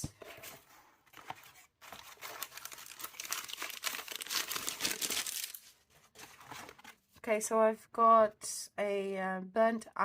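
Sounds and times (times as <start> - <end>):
packaging crinkling and tearing: 1.8 - 6.8.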